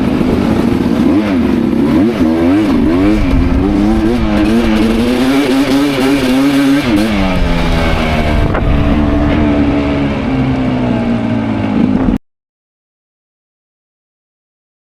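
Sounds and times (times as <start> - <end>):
dirt bike engine revving: 0.0 - 12.2.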